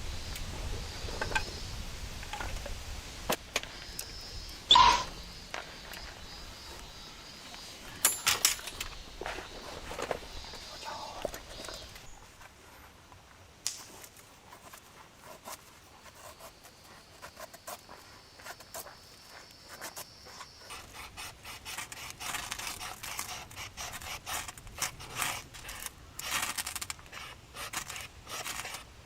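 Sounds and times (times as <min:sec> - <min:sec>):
hand scraping and rasping: 0:14.5 - 0:28.9.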